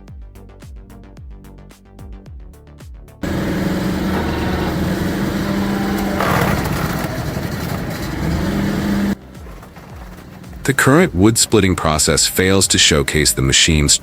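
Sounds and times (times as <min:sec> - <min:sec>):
engine-driven machine running: 0:03.2 - 0:12.9.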